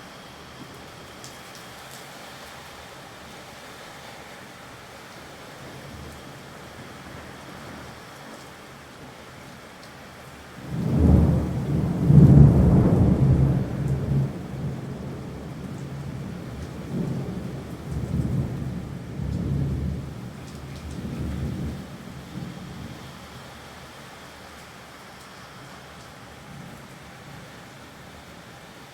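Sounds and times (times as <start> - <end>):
steady rain: 0.0 - 28.9
thunder rolling: 10.6 - 22.8.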